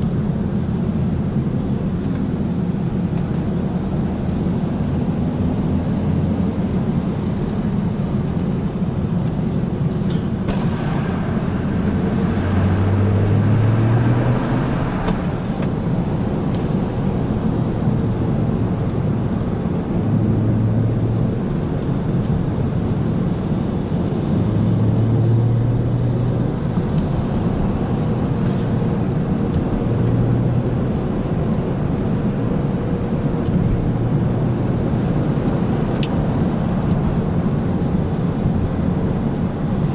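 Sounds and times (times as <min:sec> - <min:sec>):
car engine drone: 0:00.0 - 0:39.9
road noise: 0:00.0 - 0:39.9.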